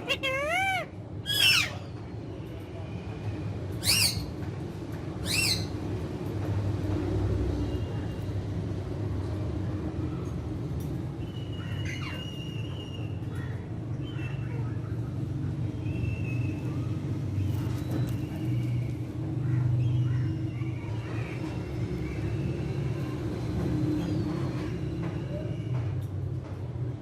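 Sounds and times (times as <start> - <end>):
parrot shrill calls: 0.0 - 1.8, 3.8 - 4.3, 5.2 - 5.7.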